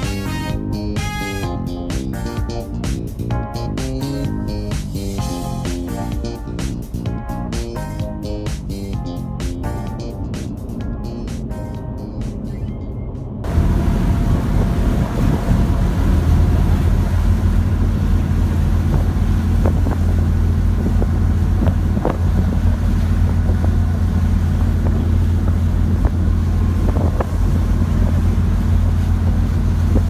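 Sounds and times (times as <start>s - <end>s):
motorboat engine running: 0.0s - 30.0s
wind on microphone: 10.2s - 30.0s.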